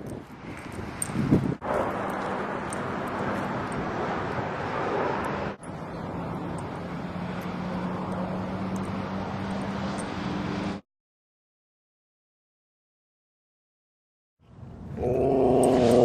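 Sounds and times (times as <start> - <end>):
distant motor traffic: 0.0 - 10.8, 14.4 - 16.0.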